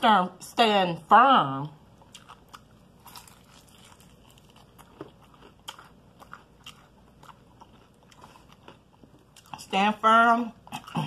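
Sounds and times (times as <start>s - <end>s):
person chewing: 1.8s - 9.6s
soft crunches of crust: 2.2s - 9.6s.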